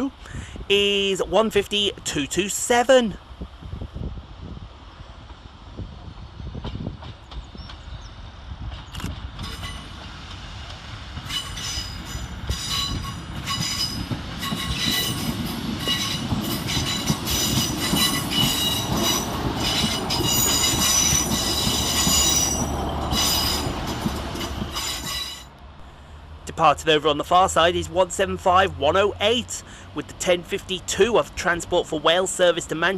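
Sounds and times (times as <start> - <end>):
train low rumble: 0.0 - 32.9
wheels and brakes squealing: 11.3 - 23.8, 24.4 - 25.5.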